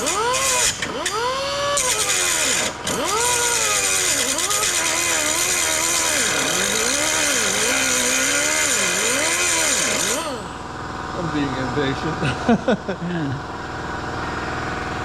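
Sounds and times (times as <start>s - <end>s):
power tool cutting steel: 0.0s - 10.7s.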